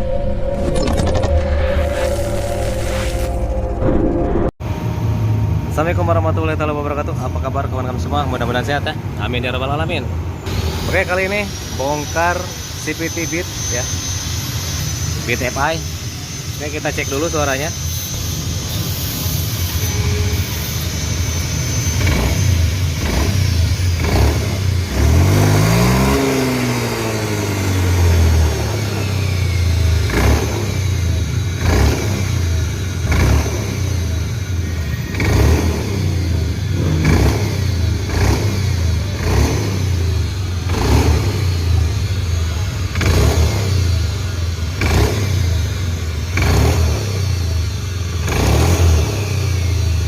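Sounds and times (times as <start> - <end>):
scooter engine revving: 18.1 - 50.0.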